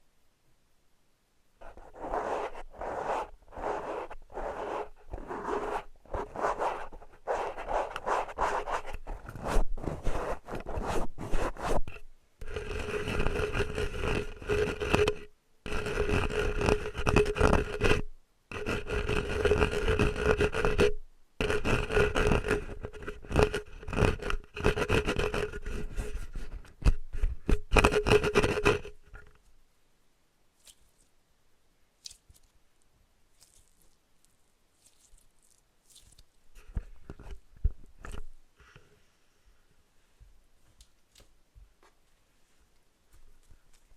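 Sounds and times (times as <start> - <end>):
close-up scraping strokes: 1.6 - 29.3.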